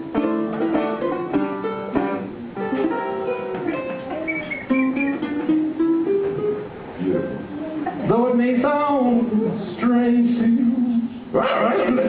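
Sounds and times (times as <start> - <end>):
ukulele playing: 0.0 - 8.1, 11.4 - 12.0.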